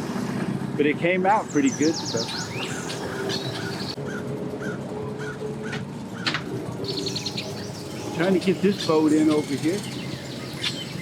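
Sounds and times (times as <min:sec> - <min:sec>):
bird chirping: 0:01.4 - 0:04.2, 0:06.2 - 0:11.0
low engine hum: 0:01.6 - 0:11.0.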